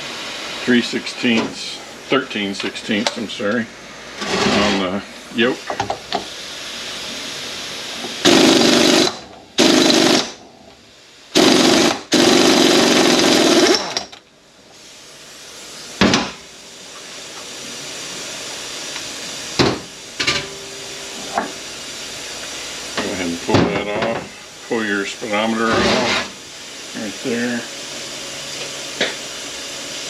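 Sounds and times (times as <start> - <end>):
impact wrench hammering: 11.4 - 14.1.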